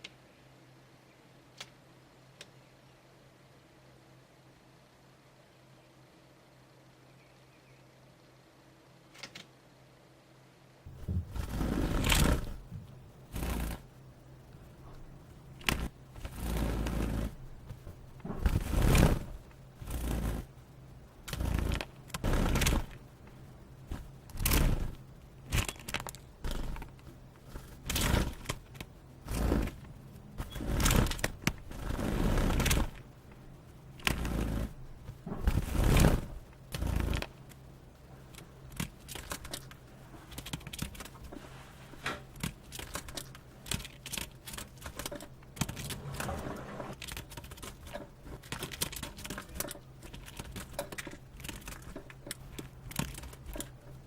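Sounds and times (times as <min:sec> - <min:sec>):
bird wings beating in a cage: 0:10.9 - 0:12.7, 0:15.6 - 0:20.5, 0:21.2 - 0:23.0, 0:23.9 - 0:26.9, 0:27.7 - 0:33.0, 0:34.0 - 0:37.4.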